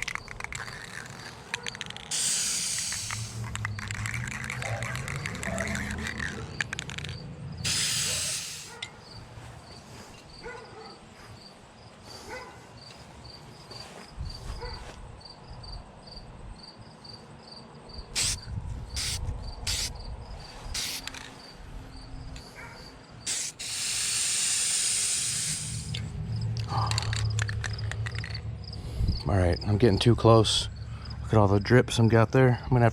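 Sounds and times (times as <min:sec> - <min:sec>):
aerosol spray can hissing: 0:02.1 - 0:06.6, 0:07.6 - 0:08.8, 0:18.2 - 0:18.4, 0:19.0 - 0:19.9, 0:20.7 - 0:21.2, 0:23.3 - 0:26.0.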